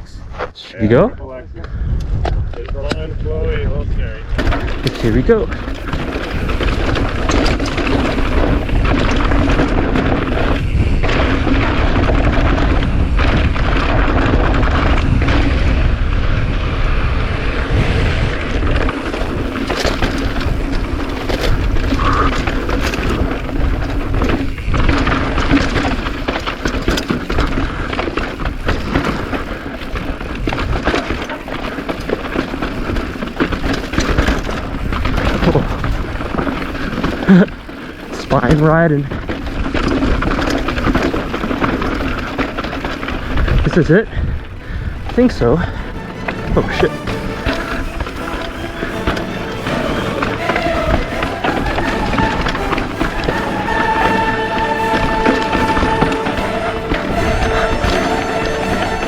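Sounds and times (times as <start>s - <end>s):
wind buffeting microphone: 0.0s - 59.0s
bike knocks and rattles: 2.1s - 54.2s.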